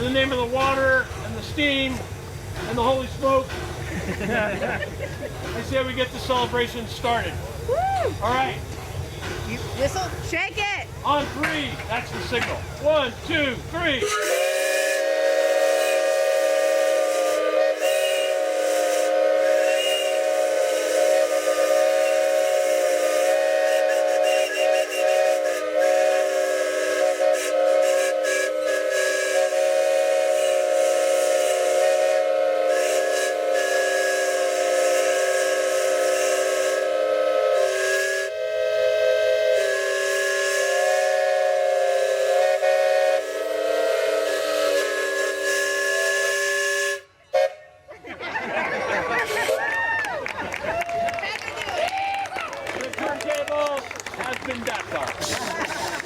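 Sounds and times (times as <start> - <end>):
steam hiss: 0.0 - 47.5, 55.2 - 56.0
steam whistles chord: 14.0 - 47.7.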